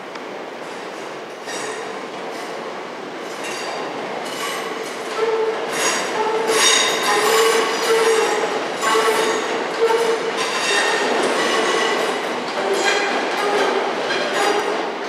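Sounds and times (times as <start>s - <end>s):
train rumble: 0.0s - 15.0s
train wheels squealing: 3.3s - 14.8s.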